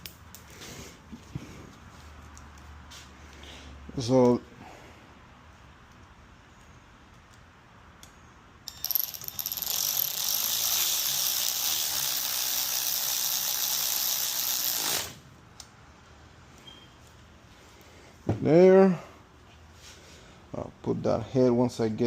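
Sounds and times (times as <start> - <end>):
power tool driving screws: 8.7 - 15.2.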